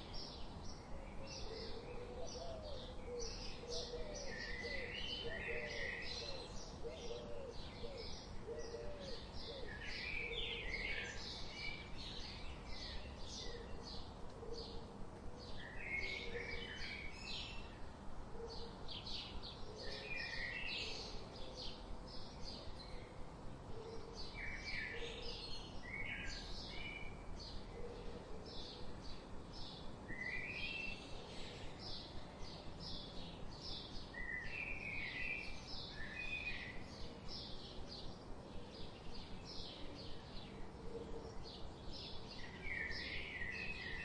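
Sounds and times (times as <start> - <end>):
birds chirping and singing: 0.0 - 14.8, 23.9 - 44.0
steady background hiss: 0.0 - 44.0.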